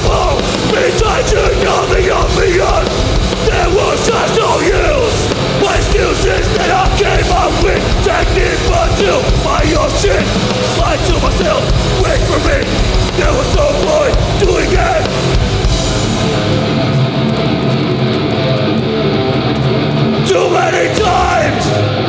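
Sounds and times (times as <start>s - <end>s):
people yelling: 0.0s - 15.5s, 20.1s - 22.0s
punk band playing live: 0.0s - 22.0s.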